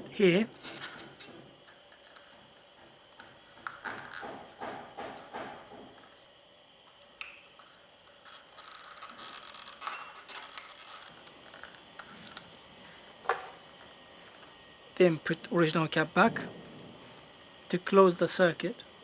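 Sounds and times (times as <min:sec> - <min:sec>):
faint scraping and rustling: 0:07.6 - 0:14.5.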